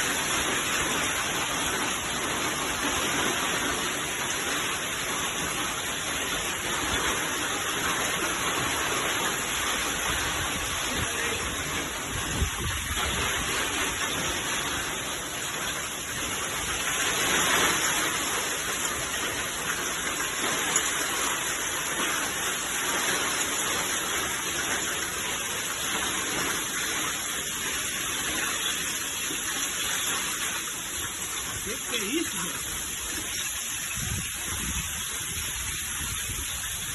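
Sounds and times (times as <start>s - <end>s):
rain and hail falling: 0.0s - 36.9s.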